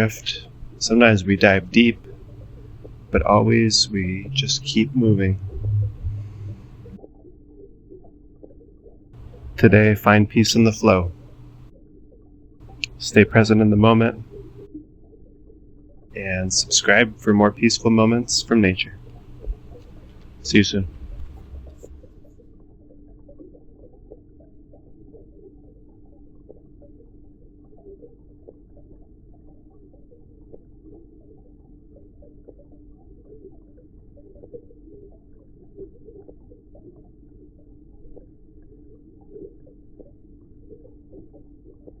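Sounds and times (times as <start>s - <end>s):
faint bubbling blips: 0.0s - 42.0s
low underwater hum: 0.0s - 42.0s.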